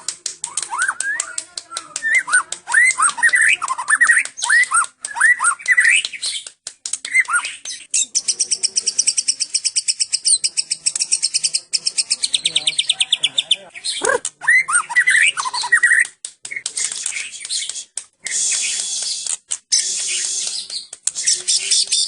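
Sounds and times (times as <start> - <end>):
bird singing: 7.1 - 22.0.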